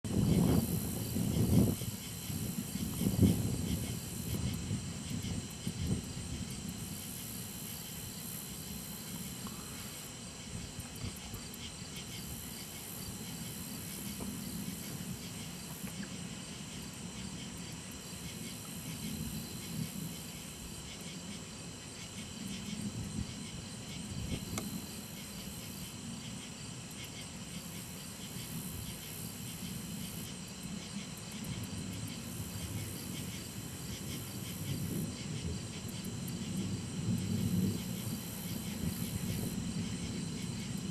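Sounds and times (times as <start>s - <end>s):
crickets and insects chirping: 0.0s - 40.9s
high insect trill: 0.1s - 40.9s
distant thunder rumble: 32.8s - 40.9s.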